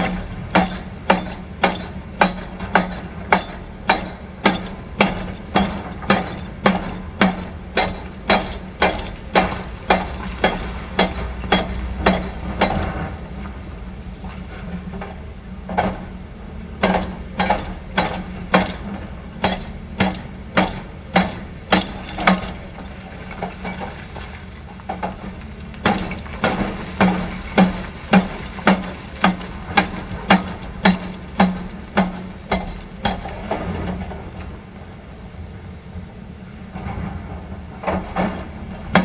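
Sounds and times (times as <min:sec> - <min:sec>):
machine hammering blows: 0:00.0 - 0:13.2, 0:16.8 - 0:23.8, 0:24.9 - 0:34.2, 0:37.8 - 0:39.0
engine drone: 0:00.0 - 0:39.0.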